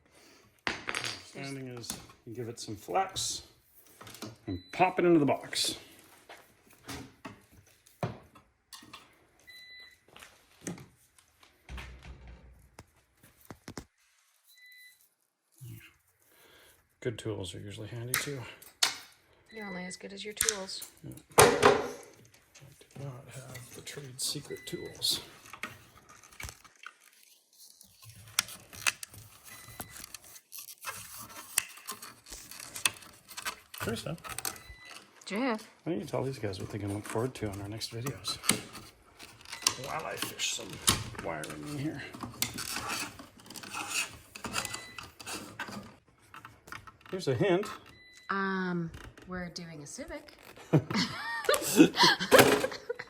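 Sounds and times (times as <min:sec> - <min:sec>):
electrical wiring handling clicks: 0:20.4 - 0:20.7
light scraping and handling: 0:21.9 - 0:35.2, 0:36.0 - 0:47.9.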